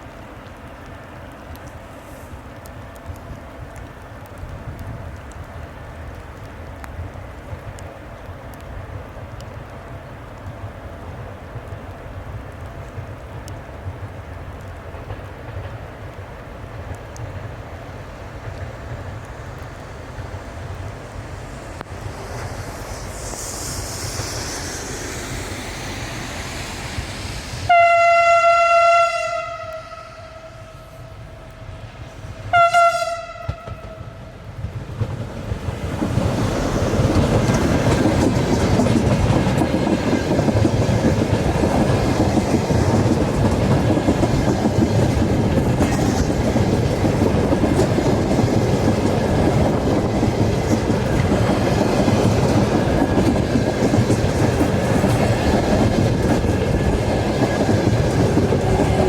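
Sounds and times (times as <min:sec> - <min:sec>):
train rumbling past: 0:00.0 - 0:59.0
locomotive horn blasts: 0:27.7 - 0:31.2, 0:32.5 - 0:34.1
wheels clicking over rail joints: 0:33.4 - 0:59.0.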